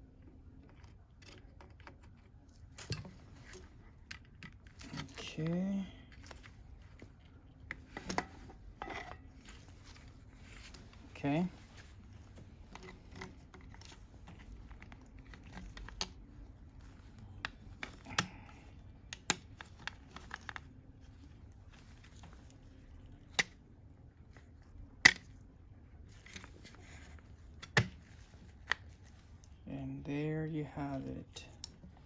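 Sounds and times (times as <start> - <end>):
light crinkling: 0.4 - 29.7.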